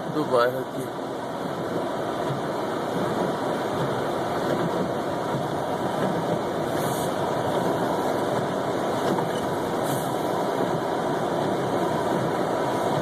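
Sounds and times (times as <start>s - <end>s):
car engine and tyre noise: 0.0s - 13.0s
faint brief hisses: 6.8s - 7.2s.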